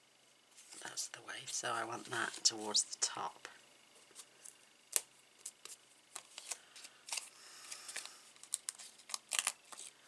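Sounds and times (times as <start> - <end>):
paper rustling: 4.0 - 10.0.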